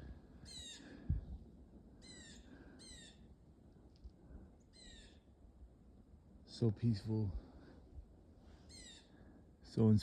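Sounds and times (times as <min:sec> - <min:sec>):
small bird raspy calls: 0:00.0 - 0:01.1, 0:02.0 - 0:03.3, 0:04.6 - 0:05.3, 0:08.6 - 0:09.3.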